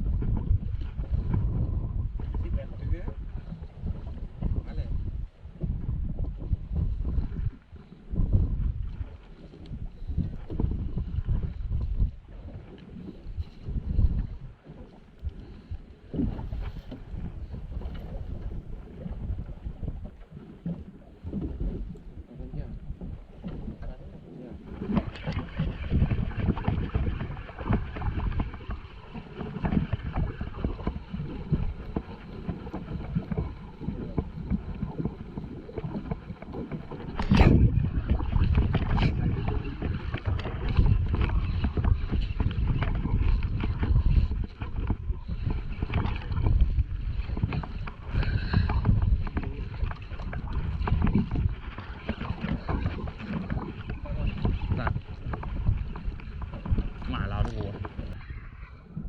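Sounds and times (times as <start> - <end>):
water slapping against boat hull: 0.0 - 59.0
wind on microphone: 0.0 - 59.0.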